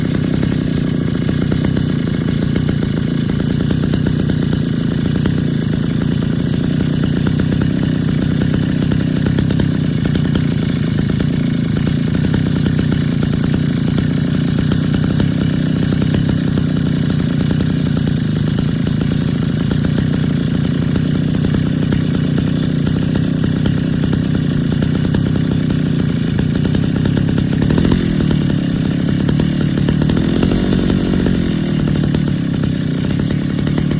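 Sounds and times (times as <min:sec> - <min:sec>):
small two-stroke engine running: 0:00.0 - 0:33.9.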